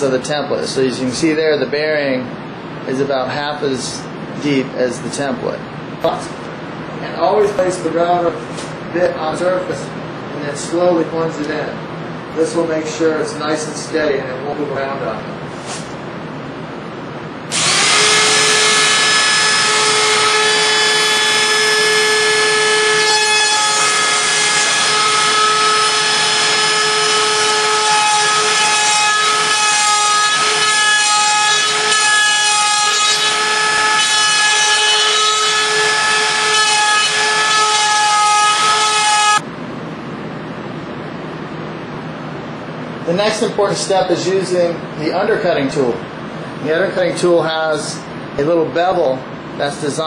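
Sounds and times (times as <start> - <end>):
electric router whining: 17.5 - 39.4.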